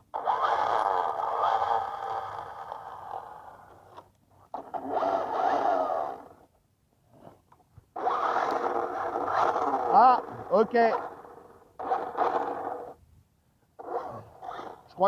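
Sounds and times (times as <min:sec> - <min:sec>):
rc truck electric motor whining: 0:00.1 - 0:04.0, 0:04.6 - 0:06.5, 0:08.0 - 0:13.0, 0:13.8 - 0:15.0.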